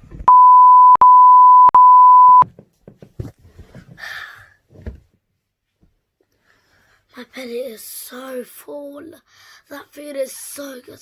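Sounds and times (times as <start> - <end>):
high censor beep: 0.3 - 2.4.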